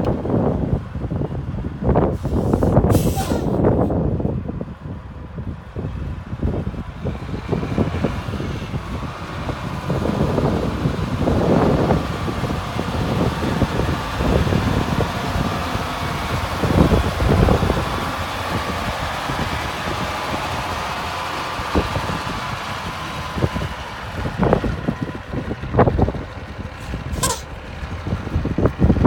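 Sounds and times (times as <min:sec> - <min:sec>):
diesel truck engine idling: 0:00.0 - 0:29.0.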